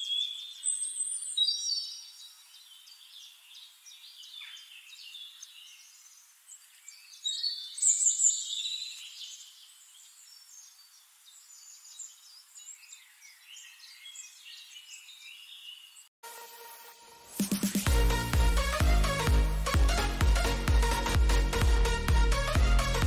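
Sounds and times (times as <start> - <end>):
birds chirping and whistling: 0.0 - 2.2, 6.8 - 9.5.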